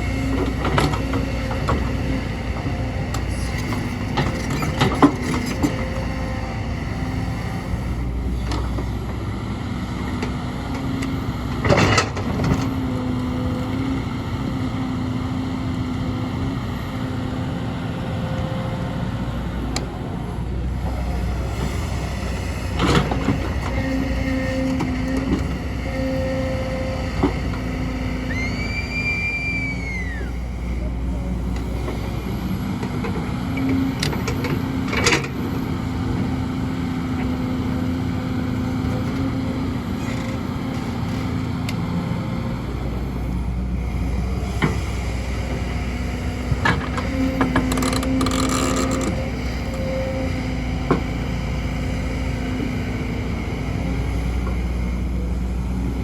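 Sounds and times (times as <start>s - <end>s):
excavator diesel engine running: 0.0s - 56.0s
brief squeal: 28.1s - 30.4s.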